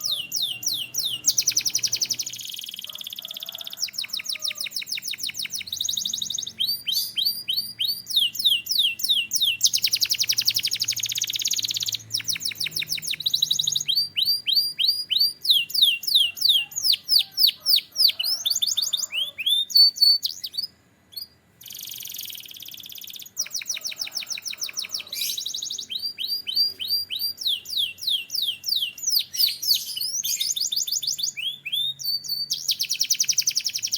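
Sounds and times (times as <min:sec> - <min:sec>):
canary singing trills: 0:00.0 - 0:33.9.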